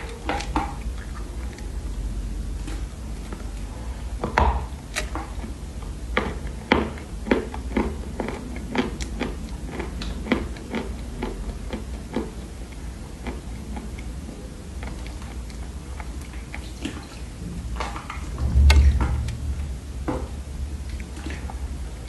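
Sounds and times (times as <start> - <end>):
clay chunks crunching when chewed: 4.6 - 18.4.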